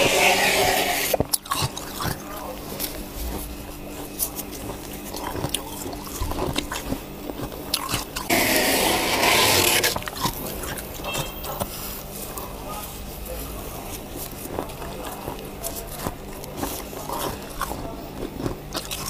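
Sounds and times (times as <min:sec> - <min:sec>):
loud hissing scrape: 0:00.0 - 0:01.2, 0:08.3 - 0:10.0
ice being crunched: 0:04.2 - 0:11.0.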